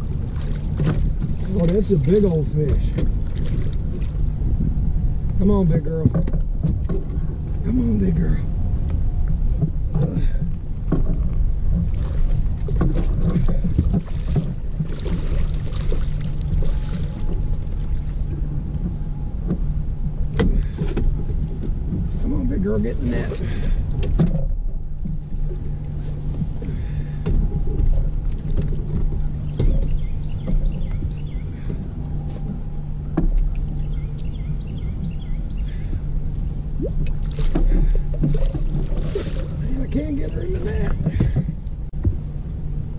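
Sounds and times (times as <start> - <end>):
boat motor rumbling: 0.0 - 42.9.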